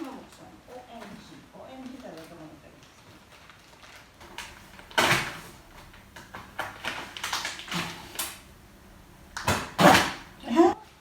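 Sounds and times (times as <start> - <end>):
packaging rustling and scraping: 2.9 - 10.7.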